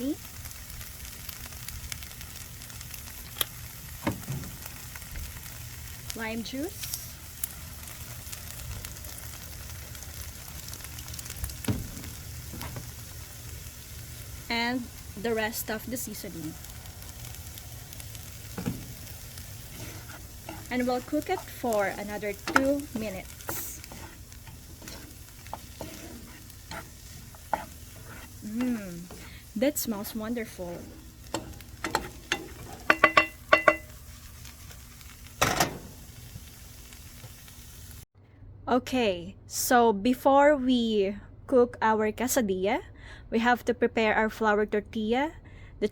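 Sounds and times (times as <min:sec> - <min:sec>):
food sizzling in a frying pan: 0:00.0 - 0:38.1
utensil clinking on frying pan: 0:31.3 - 0:34.0.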